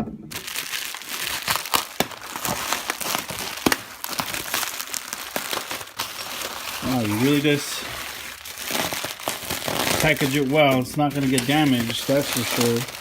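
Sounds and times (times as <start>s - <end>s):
packing material crinkling: 0.3s - 13.0s
sharp crackles and snaps: 0.6s - 6.0s.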